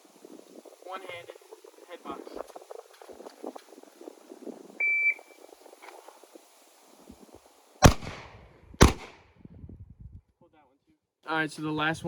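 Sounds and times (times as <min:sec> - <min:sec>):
pistol shot: 0:07.8 - 0:09.2.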